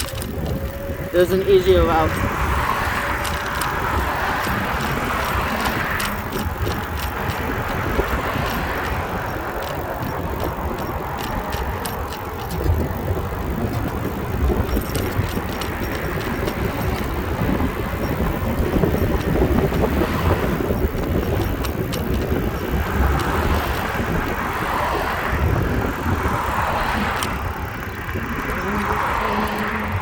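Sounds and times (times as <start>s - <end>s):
tyre and road noise: 0.0s - 30.0s
wind rumbling on microphone: 0.0s - 30.0s.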